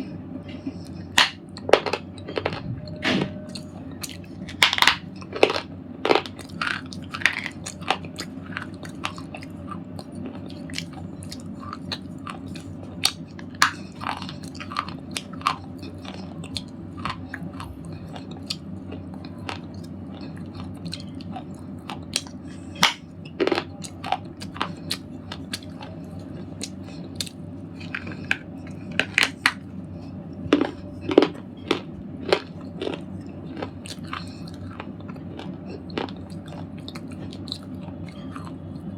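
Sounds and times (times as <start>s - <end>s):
low steady hum: 0.0s - 38.9s
slate ball crunching and cracking: 4.4s - 9.4s, 30.5s - 37.0s.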